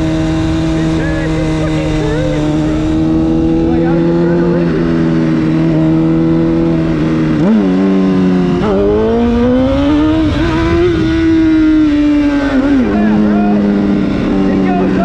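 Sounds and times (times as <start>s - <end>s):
motorcycle engine revving: 0.0s - 15.0s
wind rushing: 8.4s - 13.0s.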